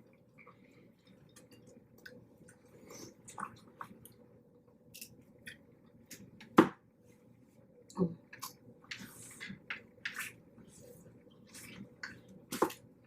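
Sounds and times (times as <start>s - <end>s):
chewing with wet clicks: 0.0s - 4.2s.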